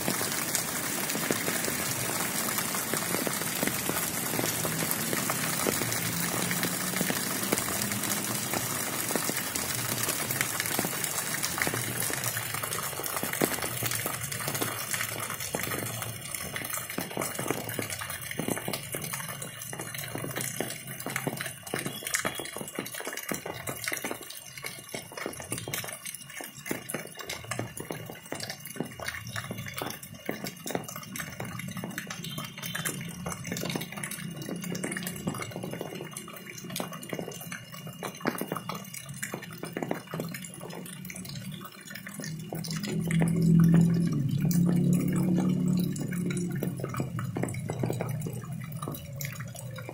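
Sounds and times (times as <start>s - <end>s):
rainwater pouring and splashing: 0.0s - 49.9s
water dripping: 0.0s - 49.9s.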